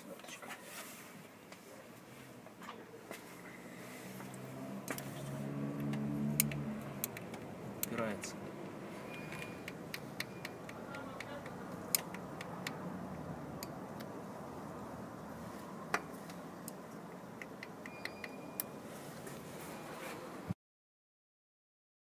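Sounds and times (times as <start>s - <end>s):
sharp clicks and taps: 5.8s - 8.8s, 9.4s - 14.2s, 15.9s - 18.7s.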